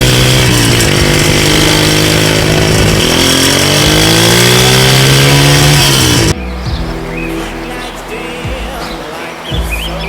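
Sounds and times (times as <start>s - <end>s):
engines running and revving: 0.0s - 6.9s.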